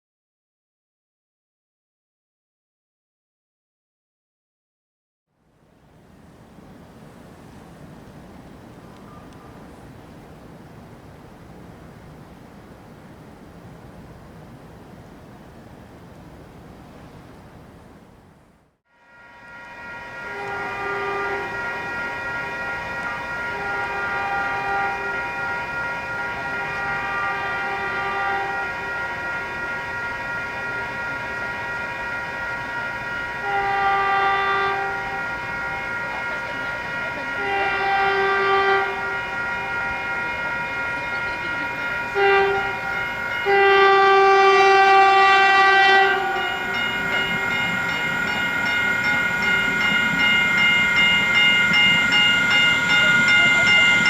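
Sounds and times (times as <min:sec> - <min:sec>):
low train rumble: 0:05.4 - 0:54.0
locomotive horn blasts: 0:19.0 - 0:54.0.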